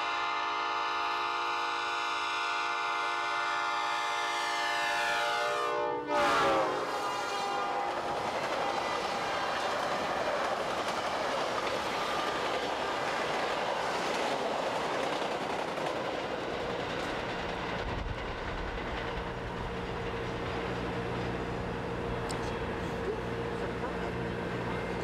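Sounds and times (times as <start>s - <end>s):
train wheels rumbling on rails: 6.3s - 25.0s
clickety-clack over rail joints: 7.8s - 25.0s.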